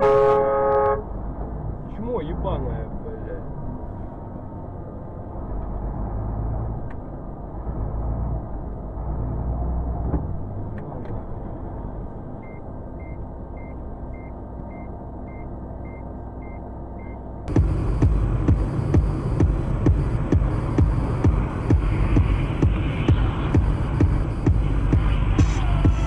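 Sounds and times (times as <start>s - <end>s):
car engine and road rumble: 0.0s - 26.0s
short electronic beeps: 12.4s - 26.0s.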